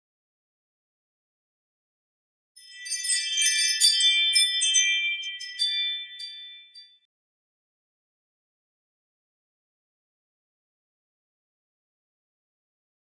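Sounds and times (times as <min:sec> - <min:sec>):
tinkling bell-like jingle: 0:02.6 - 0:07.1.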